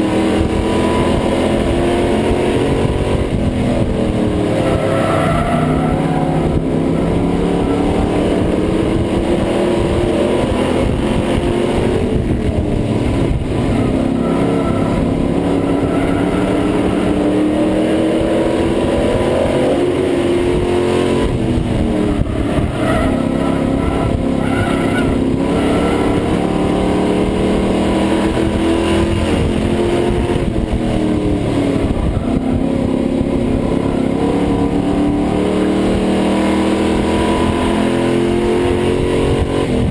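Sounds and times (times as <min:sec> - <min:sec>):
race truck engine revving: 0:00.0 - 0:39.9.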